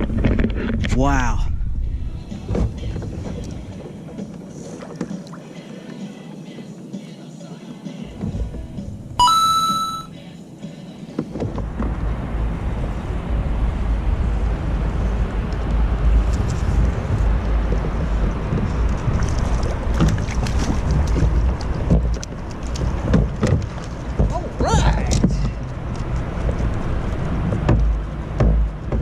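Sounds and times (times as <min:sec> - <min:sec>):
high electronic tone: 0:09.2 - 0:10.1.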